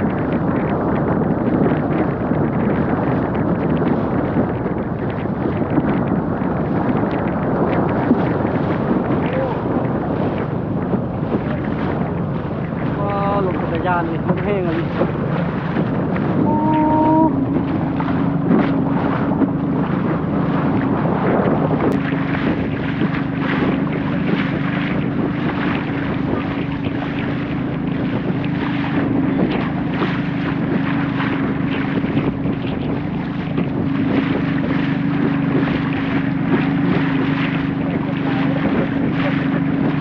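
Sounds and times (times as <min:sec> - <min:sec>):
boat engine running: 0:00.0 - 0:40.0
water splashing against hull: 0:00.0 - 0:40.0
wind buffeting microphone: 0:00.0 - 0:40.0.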